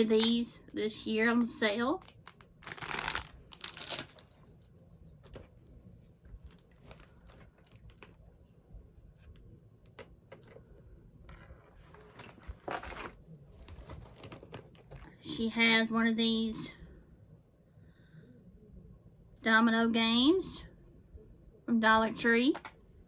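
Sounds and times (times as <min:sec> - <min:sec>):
packaging crinkling: 0:02.0 - 0:04.2.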